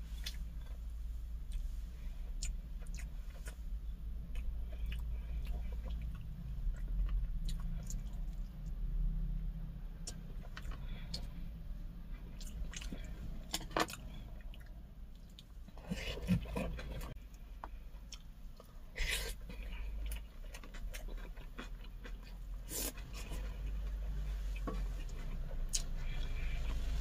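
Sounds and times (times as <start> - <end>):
person chewing: 1.4 - 3.6, 4.2 - 8.7, 12.2 - 26.8.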